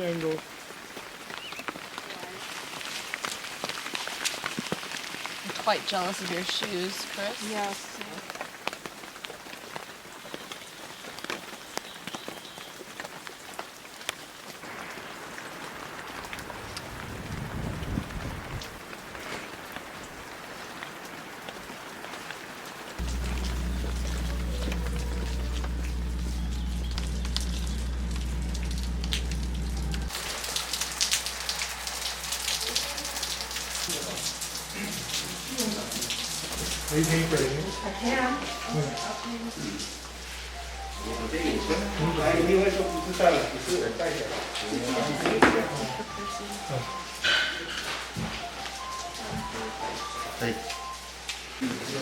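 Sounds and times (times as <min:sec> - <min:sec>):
rain drops tapping: 0:00.0 - 0:52.0
steady low hum: 0:23.0 - 0:30.1
low rumble: 0:23.0 - 0:30.2.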